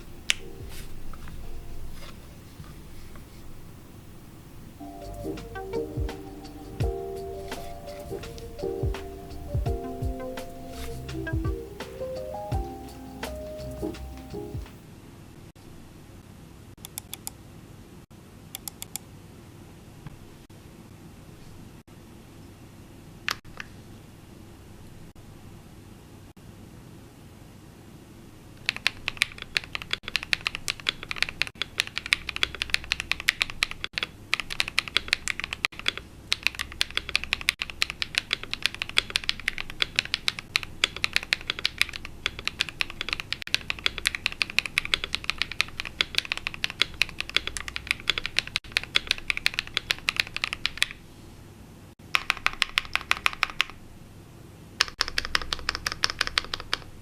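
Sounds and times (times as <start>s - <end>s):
mechanical keyboard typing: 28.6s - 51.0s, 52.0s - 53.8s, 54.8s - 57.0s.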